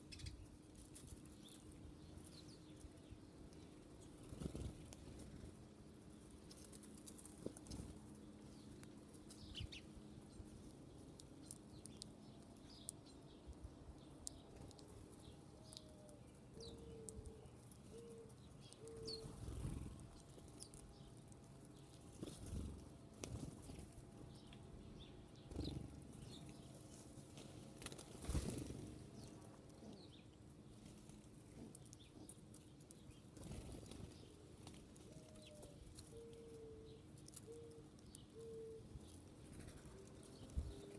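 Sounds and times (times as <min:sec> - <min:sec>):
small birds chirping: 0:00.0 - 0:40.9
dove cooing: 0:35.1 - 0:38.9.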